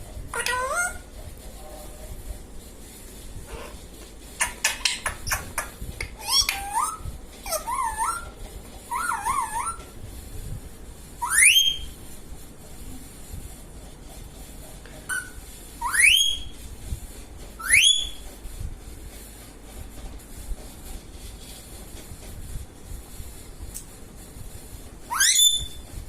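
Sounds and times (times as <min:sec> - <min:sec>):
parrot chirp: 0:00.3 - 0:01.0, 0:04.4 - 0:09.9, 0:11.2 - 0:12.0, 0:15.1 - 0:16.5, 0:17.6 - 0:18.2, 0:25.1 - 0:25.8
parrot rising whistles: 0:06.2 - 0:08.3, 0:08.9 - 0:09.8, 0:11.2 - 0:12.0, 0:15.1 - 0:16.6, 0:17.6 - 0:18.2, 0:25.1 - 0:25.8.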